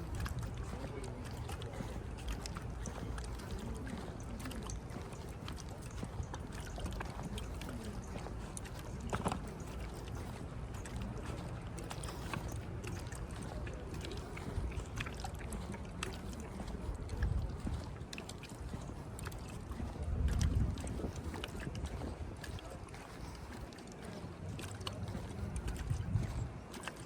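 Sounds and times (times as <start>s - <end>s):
faint voices: 0.0s - 27.0s
footsteps: 0.0s - 27.0s
wind rumbling on microphone: 0.0s - 27.0s.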